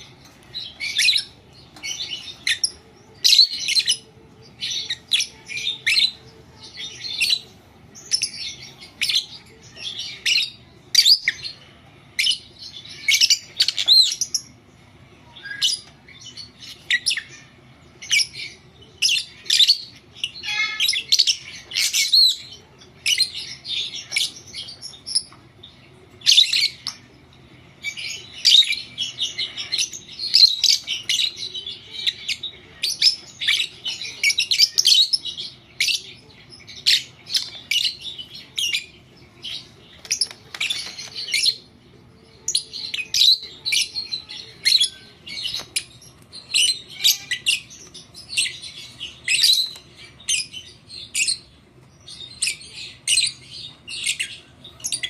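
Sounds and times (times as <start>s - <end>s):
lovebird chirping and squawking: 19.3s - 22.4s.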